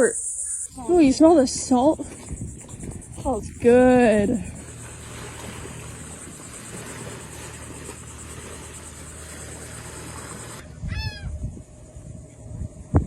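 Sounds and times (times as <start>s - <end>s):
low steady hum: 0.0s - 13.0s
outdoor hiss: 3.2s - 10.6s.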